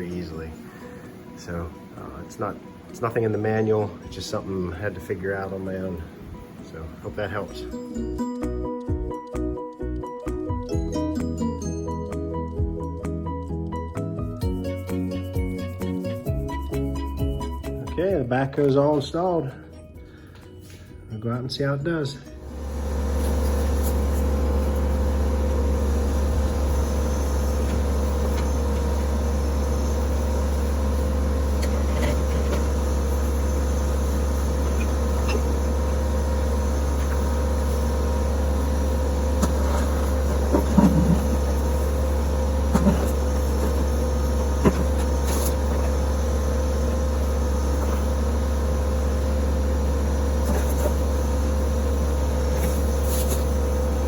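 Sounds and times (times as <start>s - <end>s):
tractor diesel engine running: 0.0s - 9.1s, 22.3s - 54.0s.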